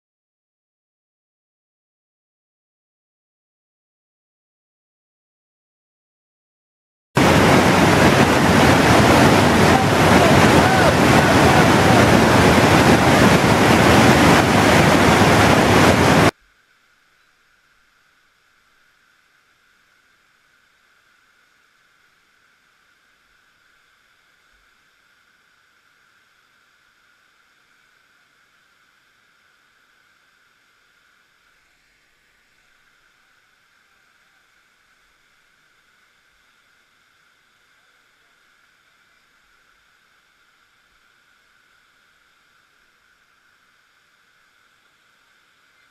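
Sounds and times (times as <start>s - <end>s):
river whitewater rushing: 7.2s - 16.3s
wind buffeting microphone: 7.2s - 16.3s
faint steady hiss: 7.2s - 45.9s.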